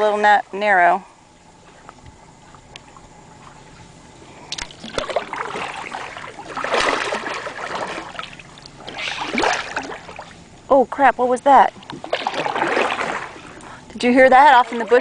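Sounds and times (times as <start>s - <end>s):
paddle strokes splashing: 4.5s - 10.5s, 11.7s - 15.0s.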